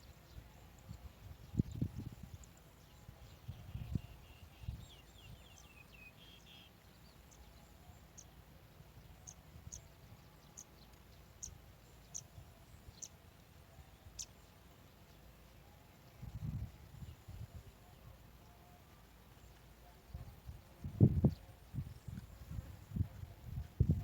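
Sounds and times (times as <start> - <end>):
small bird chirps: 9.1 - 13.2.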